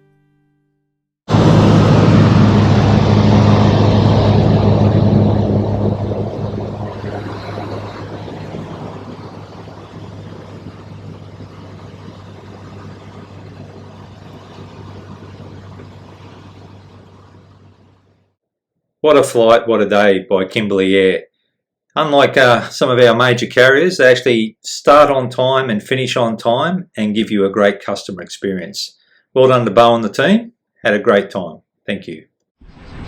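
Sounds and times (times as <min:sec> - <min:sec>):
propeller aircraft engine drone: 0:01.3 - 0:18.3.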